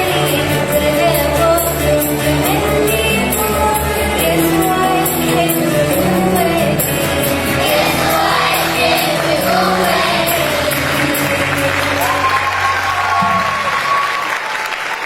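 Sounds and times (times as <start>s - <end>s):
young choir singing a hymn: 3.2s - 12.3s
audience clapping: 7.2s - 15.0s.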